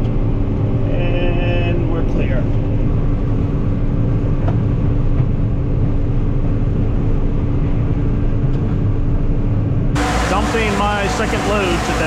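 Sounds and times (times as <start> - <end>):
combine harvester running: 10.0 - 12.0.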